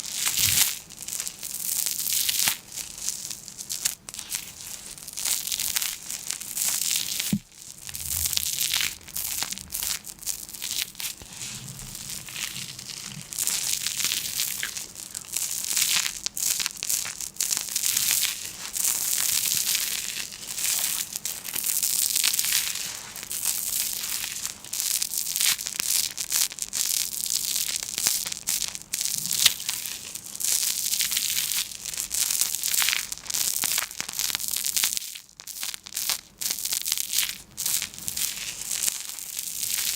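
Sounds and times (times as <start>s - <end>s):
crinkling crackly material: 2.6s - 24.7s.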